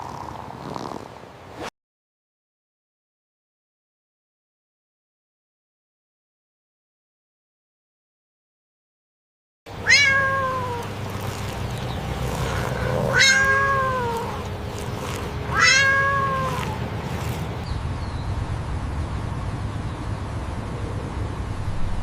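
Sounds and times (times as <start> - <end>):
cat meowing: 9.8 - 11.6, 12.2 - 17.5.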